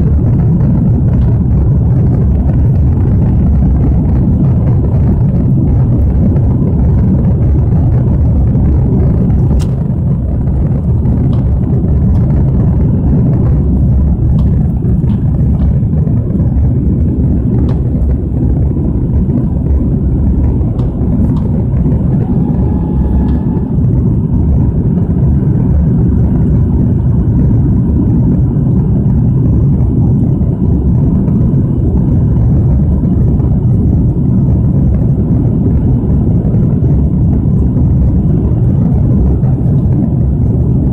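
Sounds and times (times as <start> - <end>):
jet engines rumbling in cabin: 0.0 - 40.9.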